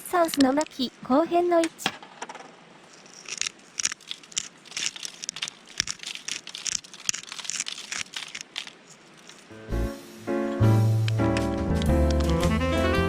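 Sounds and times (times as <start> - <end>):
dry papery crinkling and rustling: 2.8 - 9.5.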